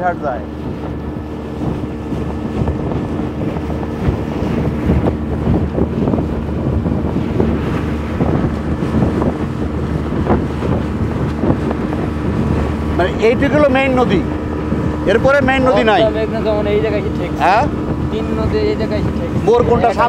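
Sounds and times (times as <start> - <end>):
speedboat engine humming: 0.0 - 20.0
wind buffeting microphone: 0.0 - 20.0
hull knocking against water: 0.4 - 15.5.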